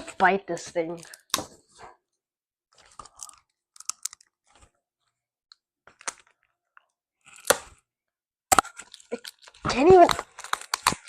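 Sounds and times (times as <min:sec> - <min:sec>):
teeth biting plastic packaging: 0:08.5 - 0:11.0
plastic crinkling: 0:08.6 - 0:11.0.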